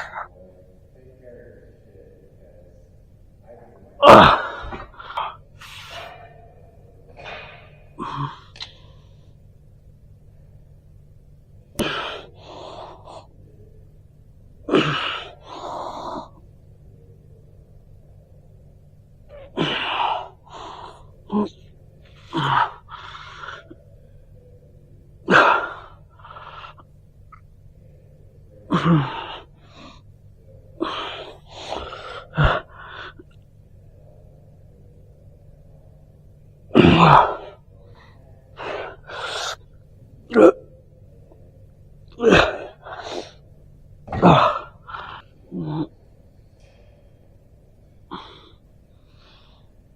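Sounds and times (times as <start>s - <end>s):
person breathing hard: 25.3s - 26.9s.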